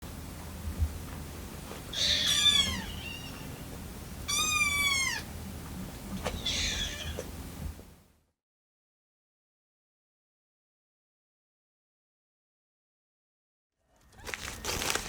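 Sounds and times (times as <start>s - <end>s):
kitten mewing: 1.9s - 3.5s, 4.3s - 5.3s, 6.3s - 7.3s.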